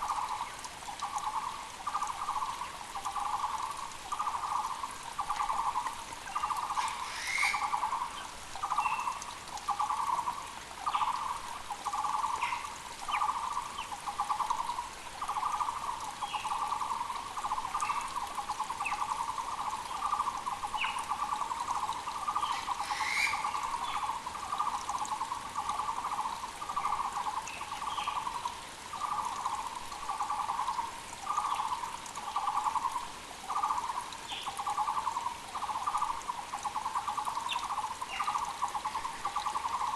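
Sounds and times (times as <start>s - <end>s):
creek hiss: 0.0s - 39.9s
birds chirping: 22.1s - 24.2s.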